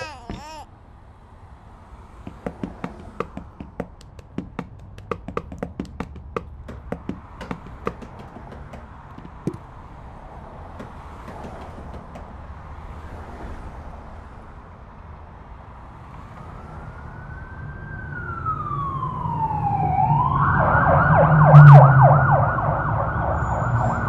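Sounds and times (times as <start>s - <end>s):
hands tapping on steering wheel: 0.0s - 0.6s, 2.2s - 9.7s, 10.8s - 12.4s.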